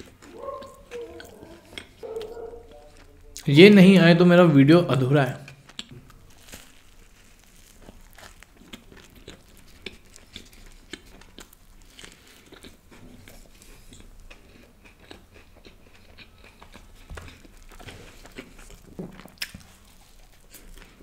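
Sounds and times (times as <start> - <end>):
crunching toasted bread: 0.0 - 3.5, 5.5 - 21.0.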